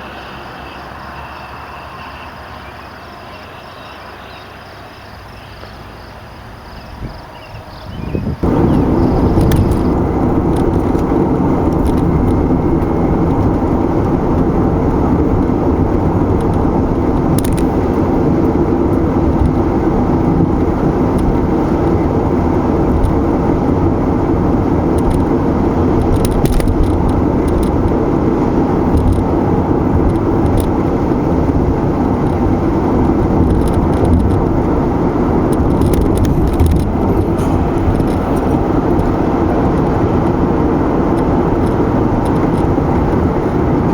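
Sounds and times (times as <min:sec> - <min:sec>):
car road noise: 0:00.0 - 0:43.9.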